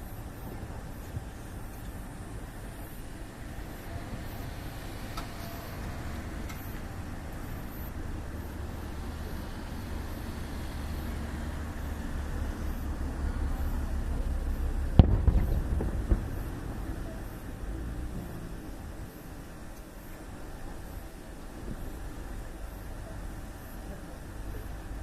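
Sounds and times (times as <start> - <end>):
low rumbling firework bursts: 0.0 - 25.0
loud fireworks bang: 14.9 - 17.6.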